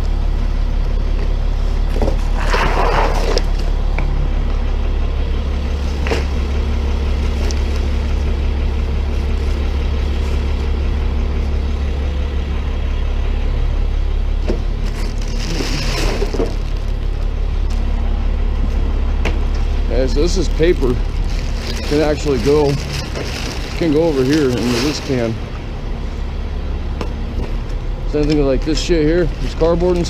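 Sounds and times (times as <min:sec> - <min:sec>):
tow truck engine idling: 0:00.0 - 0:02.4, 0:03.2 - 0:30.0
scraping clatter: 0:01.9 - 0:03.7, 0:14.8 - 0:17.2, 0:20.4 - 0:25.5.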